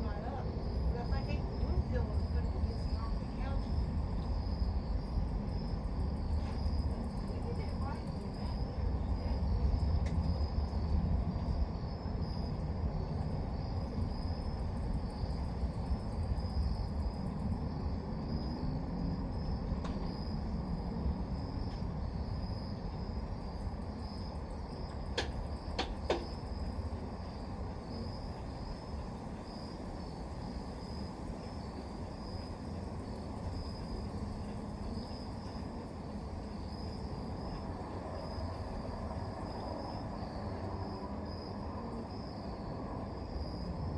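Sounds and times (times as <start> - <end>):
crickets chirping: 0.0 - 43.9
low outdoor rumble: 0.0 - 43.9.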